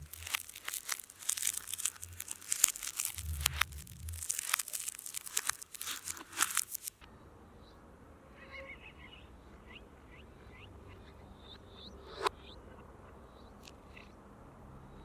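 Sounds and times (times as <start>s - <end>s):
reversed crackling and crinkling: 0.0s - 7.1s.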